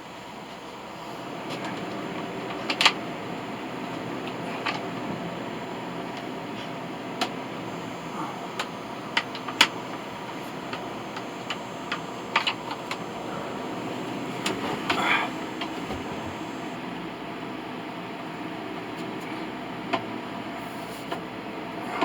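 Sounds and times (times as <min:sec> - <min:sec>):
electric fan running: 0:00.0 - 0:18.9
sharp irregular clicks and knocks: 0:07.2 - 0:13.2.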